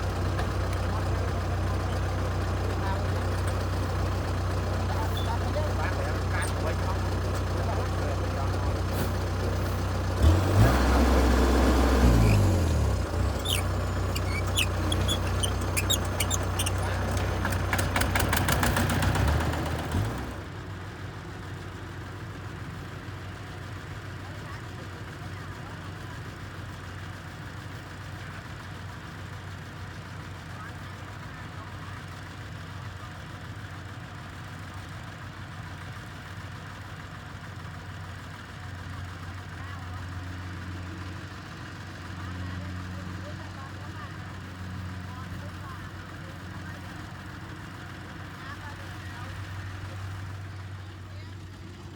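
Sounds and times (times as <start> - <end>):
diesel engine revving: 0.0 - 20.5
diesel engine running: 0.0 - 28.0, 37.5 - 51.9.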